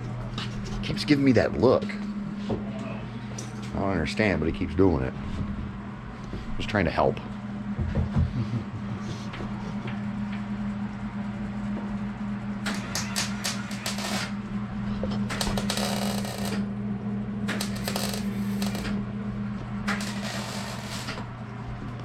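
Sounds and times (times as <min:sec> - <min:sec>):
steady low hum: 0:00.0 - 0:22.0
crackling weld sizzle: 0:12.6 - 0:14.5, 0:15.3 - 0:16.6, 0:17.5 - 0:19.0, 0:19.8 - 0:21.3.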